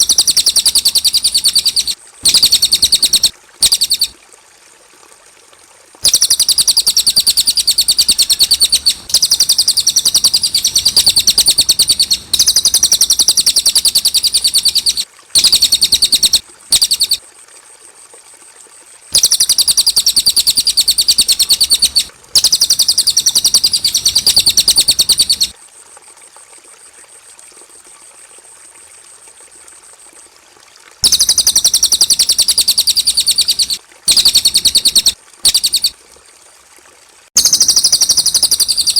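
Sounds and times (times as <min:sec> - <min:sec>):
songbird chattering trills: 0:00.0 - 0:04.1, 0:06.0 - 0:17.2, 0:19.2 - 0:25.5, 0:31.0 - 0:35.9, 0:37.4 - 0:38.9.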